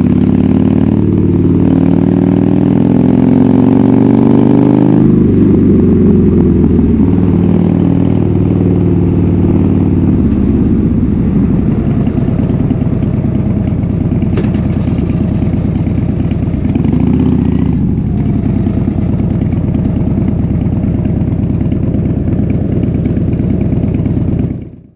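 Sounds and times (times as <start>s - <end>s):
motorcycle engine idling: 5.1s - 24.9s.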